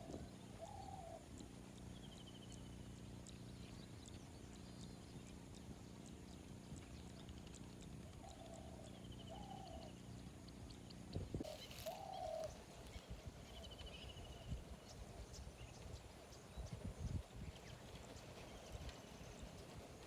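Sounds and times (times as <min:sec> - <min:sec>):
birds calling: 0:11.4 - 0:20.0.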